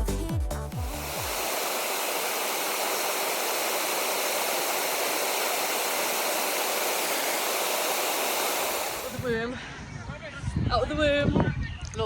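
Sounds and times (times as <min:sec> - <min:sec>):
river water rushing: 0:00.8 - 0:09.2.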